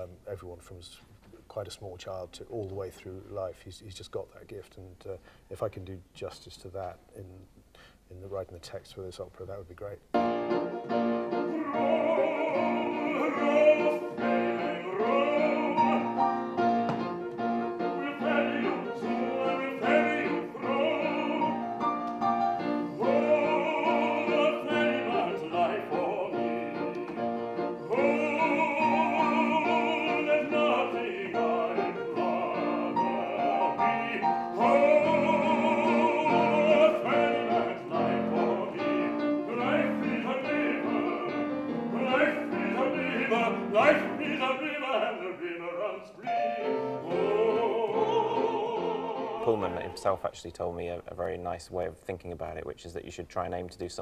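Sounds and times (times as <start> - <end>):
operatic singing with vibrato: 10.2 - 50.3.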